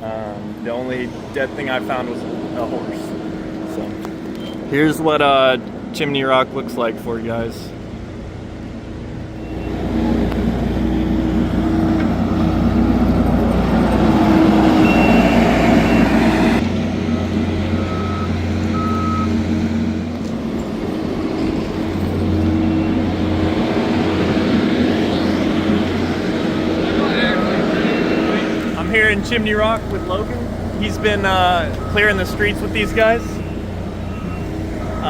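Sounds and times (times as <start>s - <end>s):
heavy machinery running: 0.0s - 6.0s, 7.4s - 35.0s
short electronic beeps: 14.8s - 16.3s, 30.0s - 35.0s.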